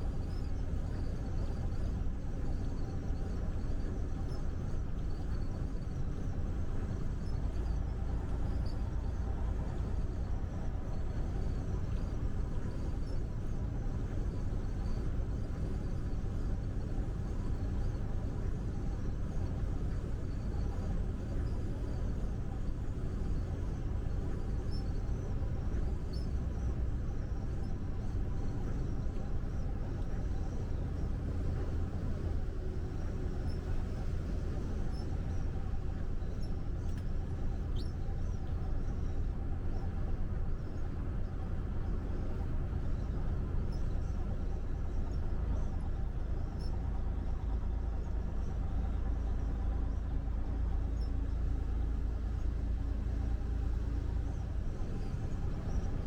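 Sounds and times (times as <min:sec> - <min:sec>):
truck engine and road rumble: 0:00.0 - 0:56.0
faint light ticks: 0:36.4 - 0:38.6.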